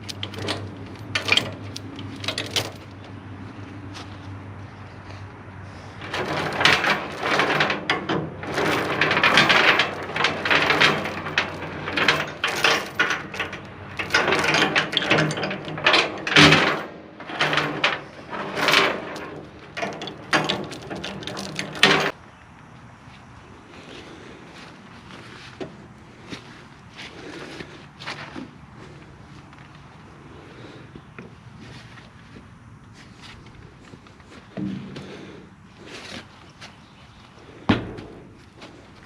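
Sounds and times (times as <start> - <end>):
chains clattering and clanking: 0.0 - 3.1, 6.0 - 22.2.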